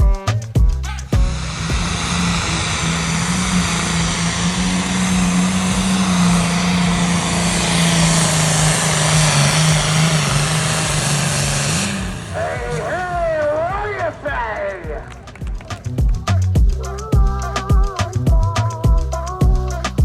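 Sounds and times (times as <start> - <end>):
engine running flat out: 0.0 - 20.0
heavy hiss: 0.0 - 20.0.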